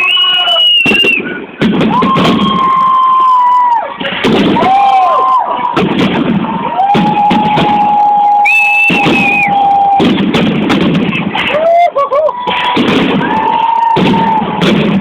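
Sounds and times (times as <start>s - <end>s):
falling whistling tones: 0.0s - 1.4s, 7.9s - 10.0s
crowd noise: 0.0s - 15.0s
fireworks bursting: 0.0s - 15.0s.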